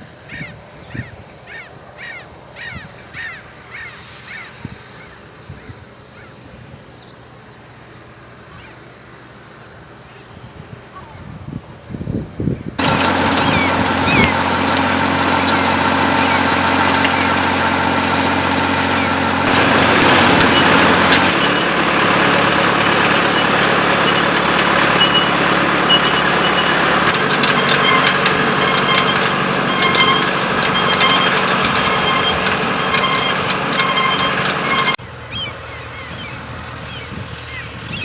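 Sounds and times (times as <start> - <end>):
tractor engine running: 12.8 - 38.0.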